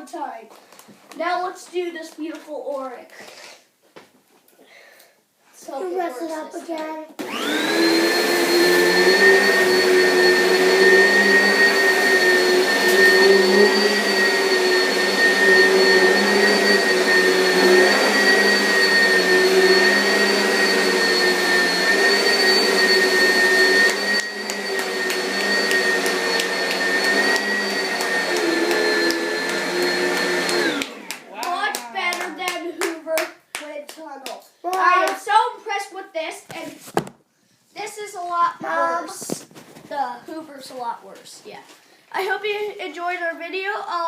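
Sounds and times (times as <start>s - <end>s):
vacuum cleaner running: 7.2s - 32.9s.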